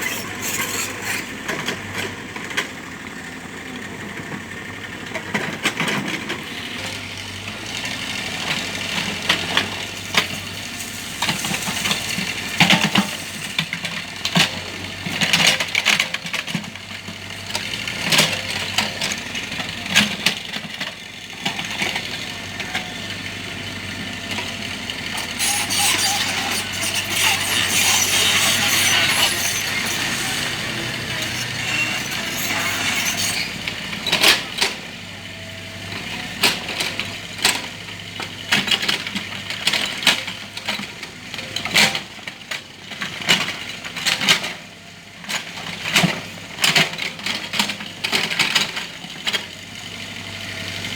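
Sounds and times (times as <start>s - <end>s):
hissing scraping noise: 0.0s - 1.5s
excavator engine running: 0.0s - 15.8s, 16.7s - 41.4s.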